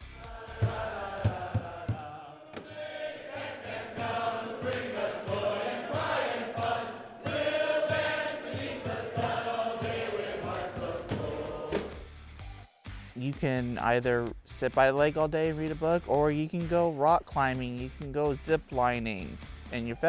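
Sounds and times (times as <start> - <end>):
music with steady beat: 0.0 - 2.2, 3.4 - 20.0
group of voices singing: 0.0 - 12.1.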